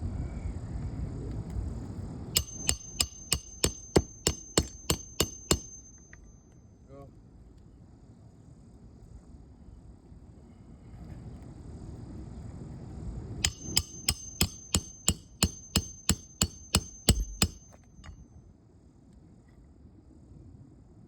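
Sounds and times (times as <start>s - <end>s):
hammer blows on nail: 2.4s - 6.2s, 13.4s - 17.8s
light hammer taps: 13.4s - 18.2s.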